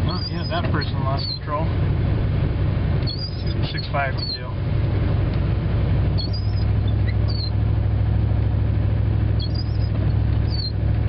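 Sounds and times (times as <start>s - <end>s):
windshield wipers squeaking: 0.0s - 1.6s, 3.0s - 4.6s, 6.1s - 7.6s, 9.3s - 10.8s
engine and road noise drone: 0.0s - 11.0s.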